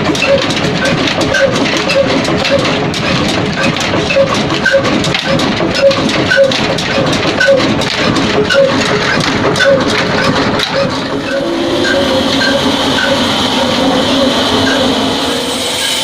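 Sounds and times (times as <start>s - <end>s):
diesel engine knocking and chuffing: 0.0s - 16.0s.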